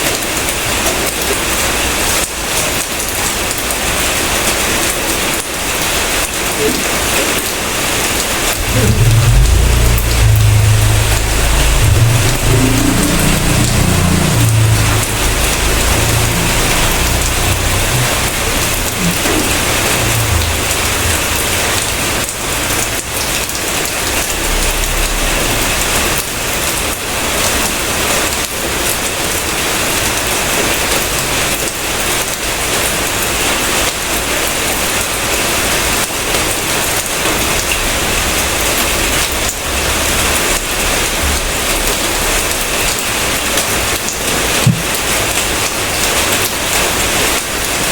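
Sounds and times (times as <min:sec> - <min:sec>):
heavy rain falling: 0:00.0 - 0:47.9
low rumble: 0:08.4 - 0:27.7.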